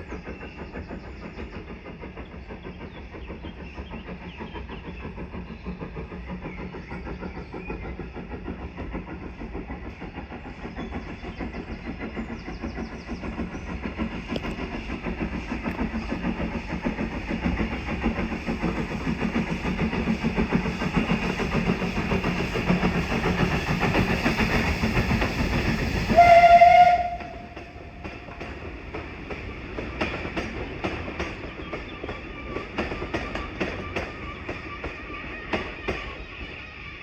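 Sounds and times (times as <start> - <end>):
train rumbling: 0.0 - 37.0
train whistle blast: 26.1 - 28.0.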